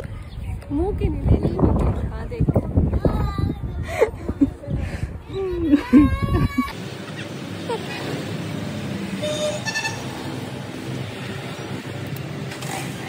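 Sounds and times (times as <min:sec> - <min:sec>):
road traffic noise: 0:00.0 - 0:13.0
vehicle horn toot: 0:09.2 - 0:10.2.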